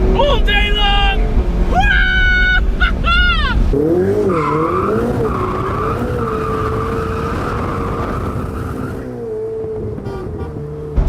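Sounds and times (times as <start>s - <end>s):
car engine: 0.0s - 11.0s
tyres squealing: 4.2s - 9.1s.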